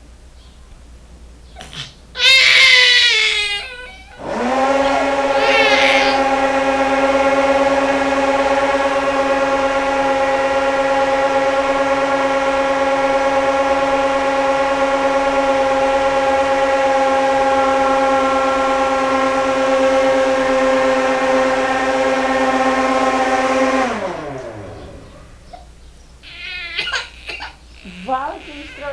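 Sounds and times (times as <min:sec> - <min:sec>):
blender motor whining: 0:02.2 - 0:25.1, 0:26.2 - 0:28.9.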